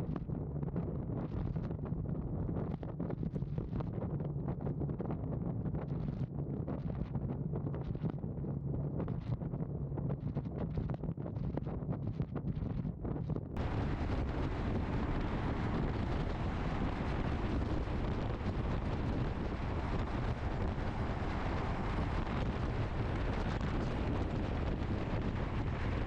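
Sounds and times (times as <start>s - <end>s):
wind rush on microphone: 0.0s - 26.0s
motorcycle road and engine noise: 13.6s - 26.0s.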